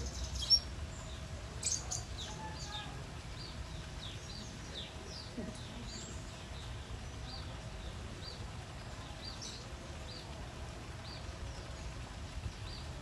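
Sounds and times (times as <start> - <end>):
small bird chirping: 0.0 - 0.7.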